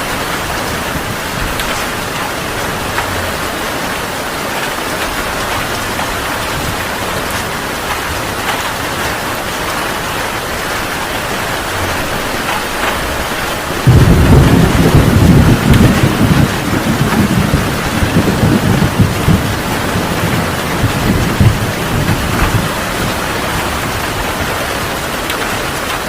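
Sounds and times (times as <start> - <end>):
heavy rain: 0.0 - 26.0
low rumble of thunder: 11.4 - 24.9.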